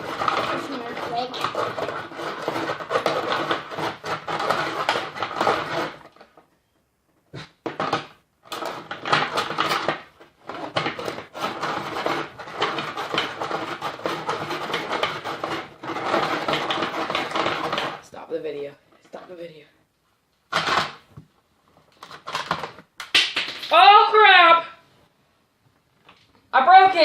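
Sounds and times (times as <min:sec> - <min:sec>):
hand-cranked ice grinder crunching: 0:00.0 - 0:06.4, 0:08.5 - 0:18.0.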